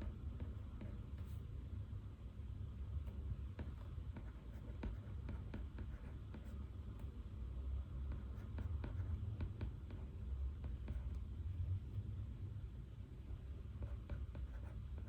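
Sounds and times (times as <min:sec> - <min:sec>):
low room hum: 0:00.0 - 0:15.0
pen scratching on paper: 0:03.6 - 0:06.6, 0:08.1 - 0:11.1, 0:13.8 - 0:15.0.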